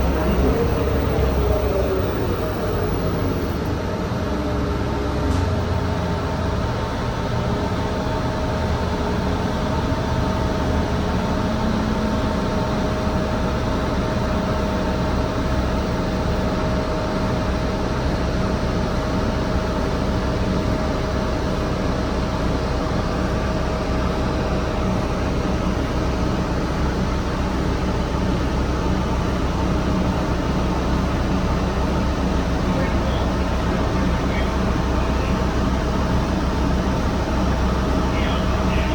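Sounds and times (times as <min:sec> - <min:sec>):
faint even whine: 0:00.0 - 0:03.8
bus engine and road rumble: 0:00.0 - 0:38.9.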